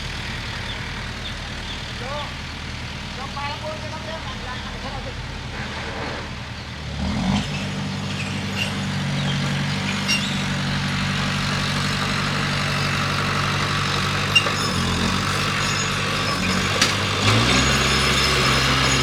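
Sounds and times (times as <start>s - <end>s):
bulldozer diesel engine running: 0.0s - 19.0s
light metallic clanks: 14.2s - 19.0s.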